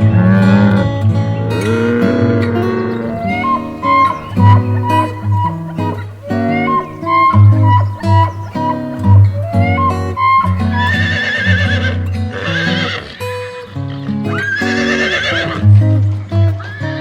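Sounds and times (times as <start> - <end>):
background music: 3.0 - 11.1
horse whinnying: 3.0 - 13.1, 14.4 - 15.6.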